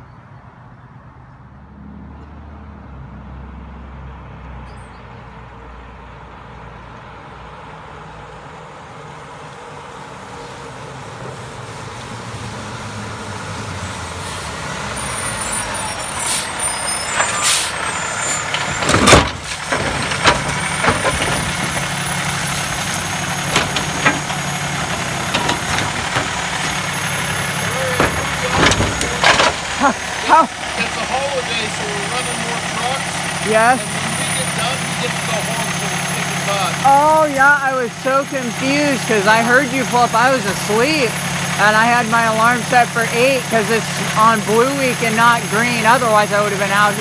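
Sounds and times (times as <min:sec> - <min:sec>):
garbage truck engine: 0:08.0 - 0:47.0
sharp metallic knocks and bangs: 0:16.9 - 0:36.8.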